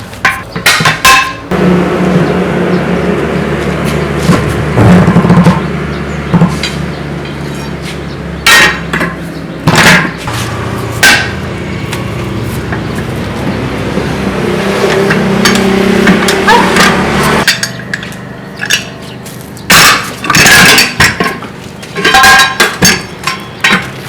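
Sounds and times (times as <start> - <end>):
motor humming: 1.5 - 20.4.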